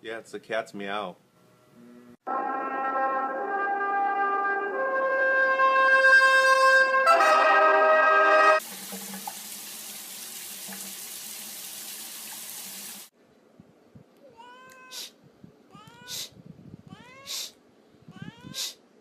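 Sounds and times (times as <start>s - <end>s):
cat meowing: 14.2s - 15.1s, 15.7s - 16.3s, 16.9s - 17.5s, 18.1s - 18.8s.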